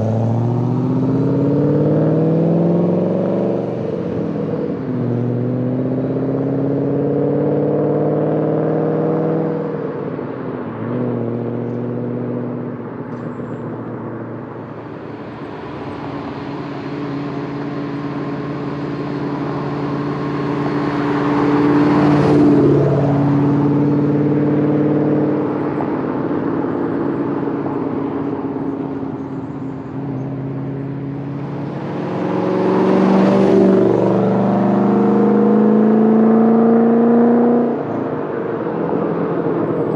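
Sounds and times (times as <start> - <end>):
loud car exhaust driving past: 13.8 - 37.8.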